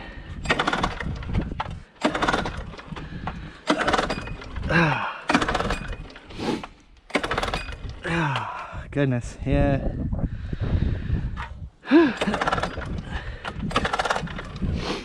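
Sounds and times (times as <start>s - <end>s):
recoil starter pulls: 0.3s - 8.6s, 11.4s - 14.8s
person grunting: 4.7s - 5.3s, 8.0s - 8.8s, 11.8s - 12.4s.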